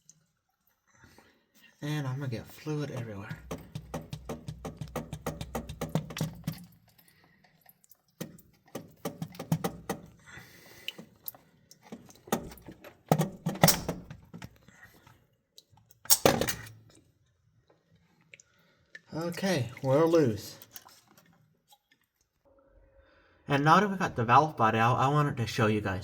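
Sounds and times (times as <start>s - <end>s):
metal bolts and wrench clanking: 13.1s - 14.1s, 16.1s - 16.7s.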